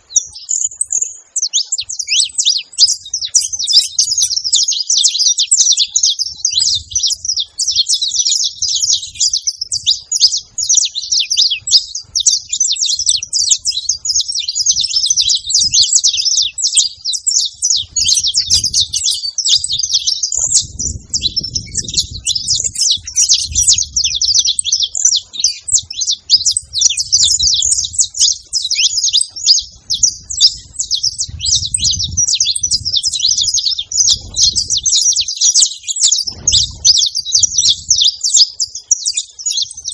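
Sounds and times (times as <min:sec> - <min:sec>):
finches singing: 0:00.0 - 0:39.9.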